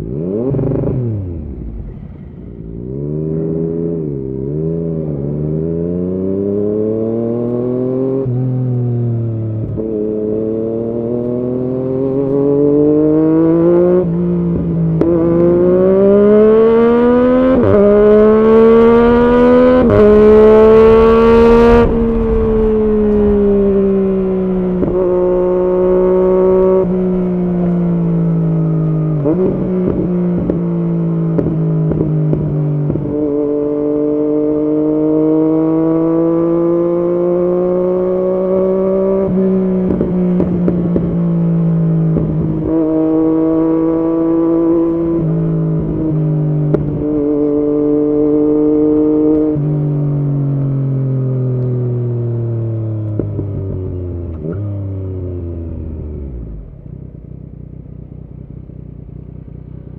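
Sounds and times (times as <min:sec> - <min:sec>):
motorcycle engine revving: 0:00.0 - 0:59.9
exhaust crackle: 0:18.8 - 0:33.1.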